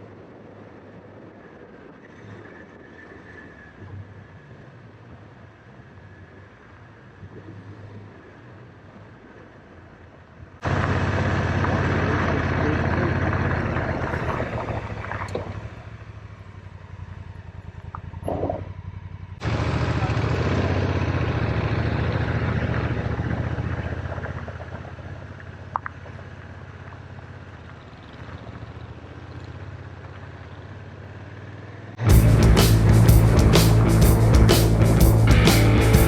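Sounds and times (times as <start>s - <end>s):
motorcycle engine running: 10.6s - 36.0s
music: 32.1s - 36.0s.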